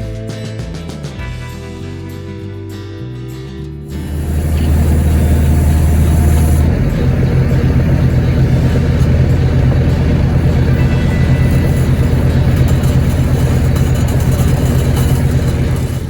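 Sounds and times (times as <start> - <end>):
excavator diesel engine running: 3.9 - 16.0.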